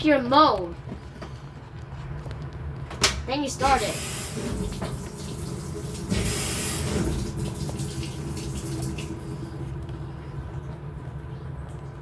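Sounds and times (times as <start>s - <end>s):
water rushing into washing machine: 3.5s - 9.8s
low hum: 3.9s - 12.0s.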